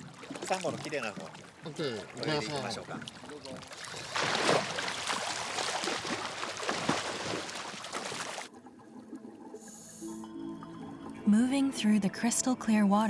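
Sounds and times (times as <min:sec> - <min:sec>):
water splashing and churning: 0:00.0 - 0:09.6.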